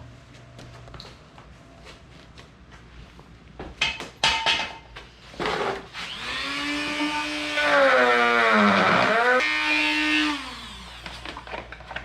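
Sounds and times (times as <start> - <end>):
rotary tool high whine: 5.9 - 11.6.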